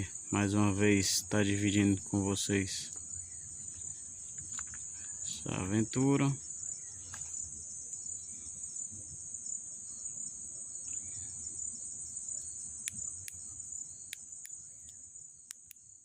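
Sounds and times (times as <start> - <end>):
insects trilling: 0.0 - 16.0
sharp clicks: 12.8 - 13.4, 14.1 - 15.8.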